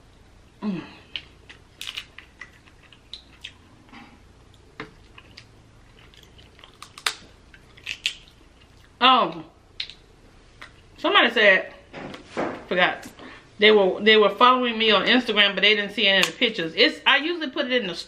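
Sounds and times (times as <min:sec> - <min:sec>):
person humming: 0:00.6 - 0:01.1
chewing: 0:01.1 - 0:09.0
crab shell cracking: 0:06.1 - 0:08.8.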